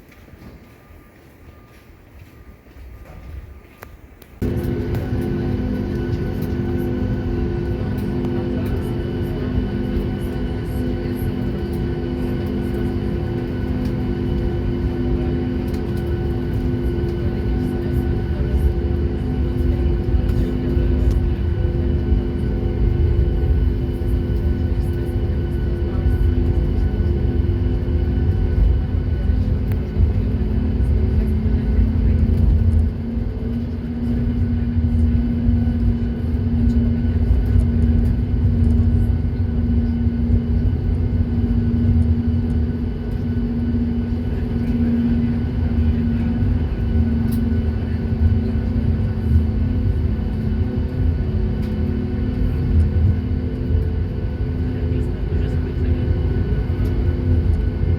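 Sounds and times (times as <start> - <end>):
aircraft engines droning: 0.0 - 57.9.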